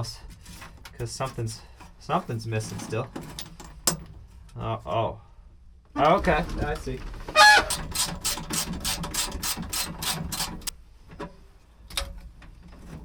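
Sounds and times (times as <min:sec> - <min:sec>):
ratchet wrench clicking: 0:07.7 - 0:10.7.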